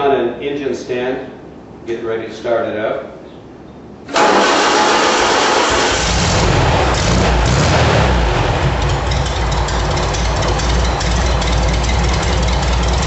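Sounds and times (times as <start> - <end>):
air-cooled engine running: 4.1 - 13.0.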